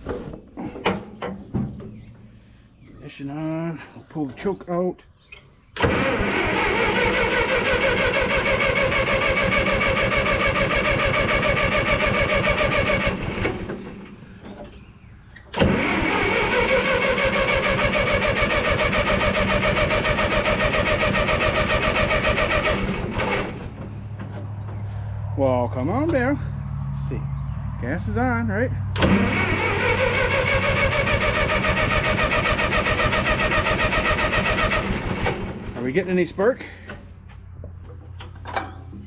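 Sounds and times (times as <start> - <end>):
electric starter cranking engine: 5.8 - 14.2, 15.5 - 23.8, 29.0 - 35.8.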